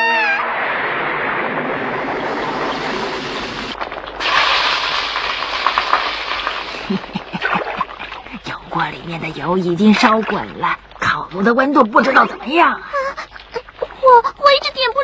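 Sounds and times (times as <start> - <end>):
steady hissing noise: 2.0 - 15.0
small crackles: 2.3 - 8.4.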